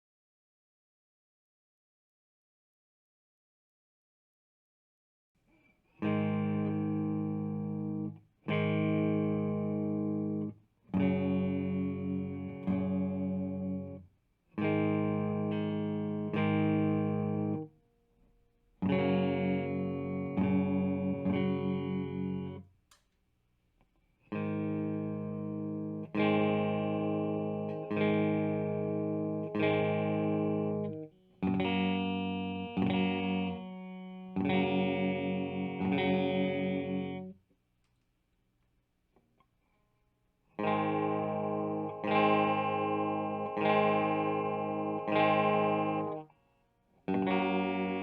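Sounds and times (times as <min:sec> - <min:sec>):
electric guitar chords: 0:05.9 - 0:17.8, 0:18.8 - 0:22.7, 0:24.3 - 0:37.4, 0:40.5 - 0:48.0.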